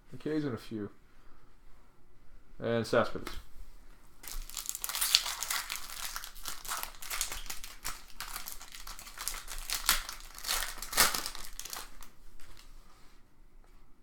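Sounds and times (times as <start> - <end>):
wrapper crinkling and tearing: 4.2 - 12.7.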